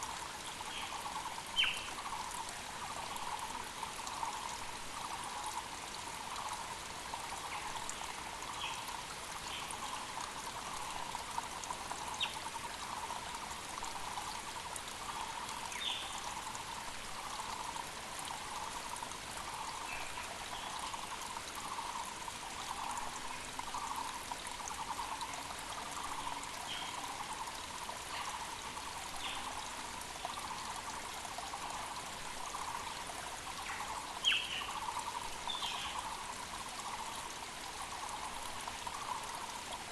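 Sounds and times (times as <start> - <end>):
creek flowing: 0.0 - 39.9
birds high chirps: 33.7 - 36.0.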